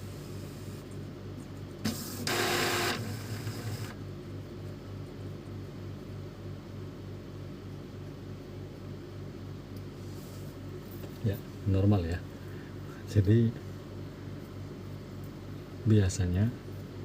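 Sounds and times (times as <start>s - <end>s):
steady low hum: 0.0s - 17.0s
printer mechanical whirring: 1.8s - 4.0s.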